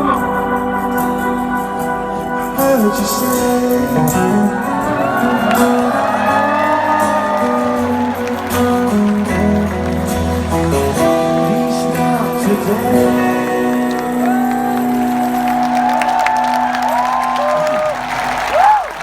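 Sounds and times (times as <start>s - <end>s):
rock band playing live: 0.0s - 18.3s
crowd cheering and whooping: 4.2s - 11.6s, 12.9s - 19.0s.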